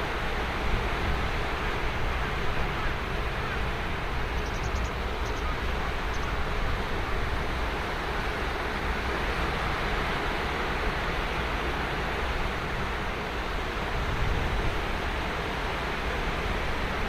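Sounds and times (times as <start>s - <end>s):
ocean surf on a beach: 0.0s - 17.0s.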